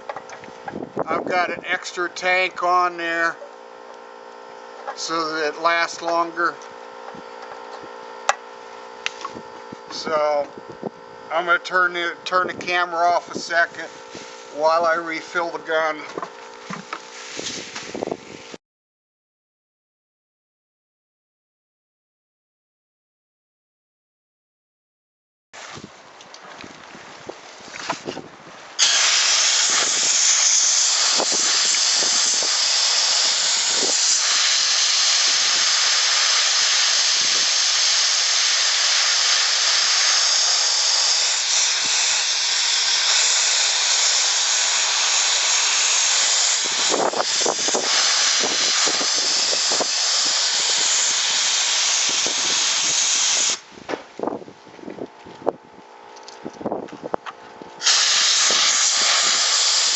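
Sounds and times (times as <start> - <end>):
sandblasting gun hissing: 13.3 - 15.7, 17.1 - 18.6, 28.8 - 53.7, 57.8 - 59.9.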